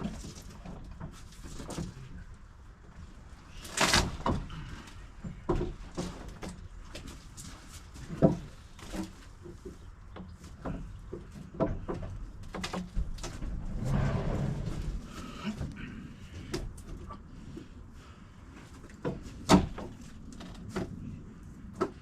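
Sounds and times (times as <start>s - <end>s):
wooden boards creaking: 11.5s - 15.5s.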